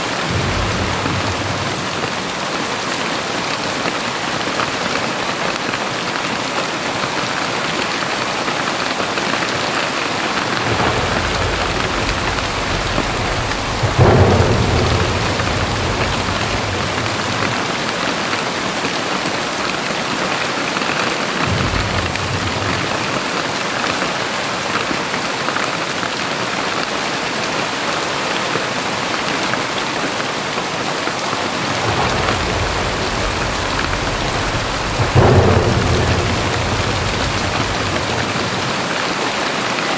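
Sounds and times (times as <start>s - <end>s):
thunder rolling: 0.0s - 4.7s, 9.2s - 20.2s, 21.3s - 24.0s, 31.2s - 39.9s
heavy rain pouring: 0.0s - 39.9s.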